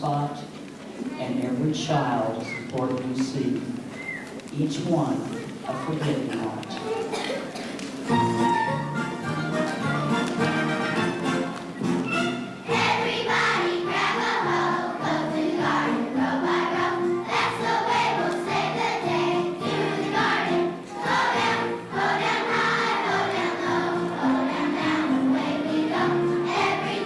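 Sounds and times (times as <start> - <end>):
piano accompaniment: 8.0 - 27.0
children's choir singing: 12.6 - 27.0.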